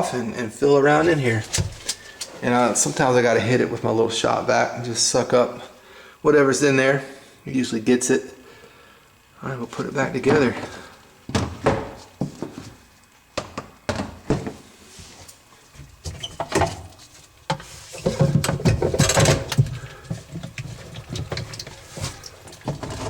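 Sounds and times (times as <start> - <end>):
dishwasher parts clicking and knocking: 18.0 - 19.9.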